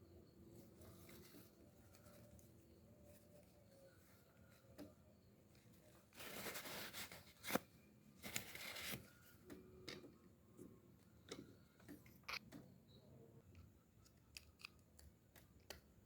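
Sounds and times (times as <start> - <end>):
small parts clicking: 13.5 - 16.0.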